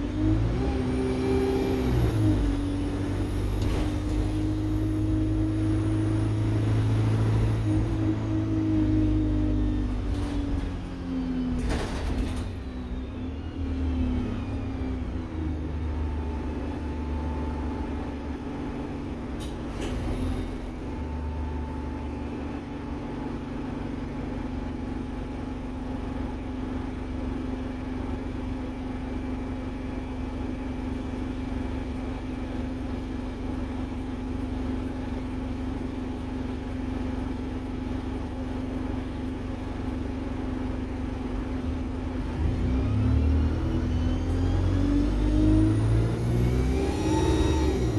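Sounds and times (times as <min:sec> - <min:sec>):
bus engine humming: 0:00.0 - 0:12.5, 0:14.8 - 0:36.6, 0:43.2 - 0:47.9.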